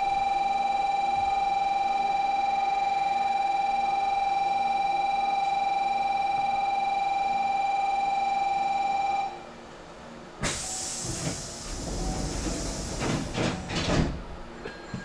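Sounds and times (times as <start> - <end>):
train compressed air hiss: 10.4 - 13.5
knocks and rumble from train car: 10.4 - 15.0.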